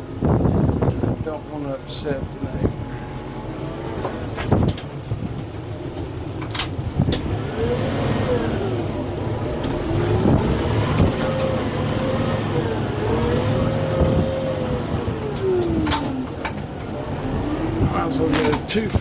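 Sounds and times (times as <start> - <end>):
tractor diesel engine revving: 0.0 - 19.0.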